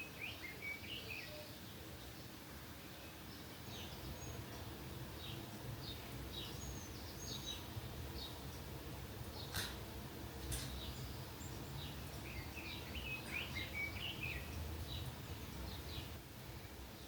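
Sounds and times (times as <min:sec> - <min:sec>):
small birds chirping: 0:00.0 - 0:17.0
low outdoor rumble: 0:03.6 - 0:17.0.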